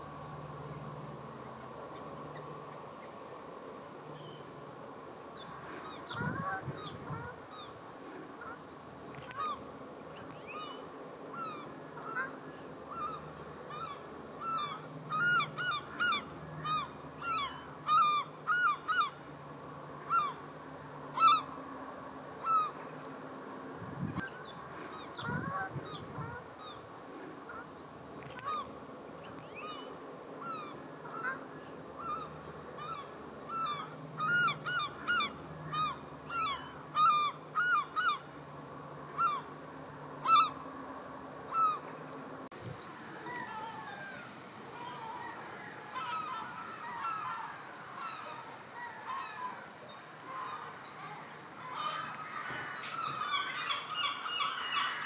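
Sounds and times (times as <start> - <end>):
birds calling: 0.0 - 55.0.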